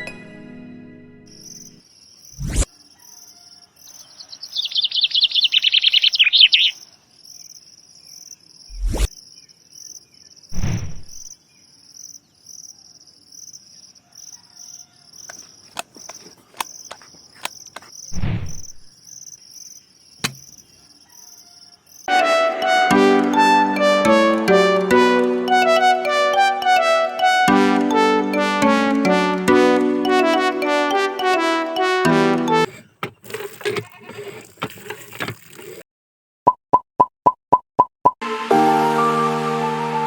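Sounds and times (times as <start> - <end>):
crickets chirping: 1.4 - 22.1
bird trill: 3.0 - 6.9
dull thuds: 10.6 - 11.3
sharp clicks: 20.2 - 20.6.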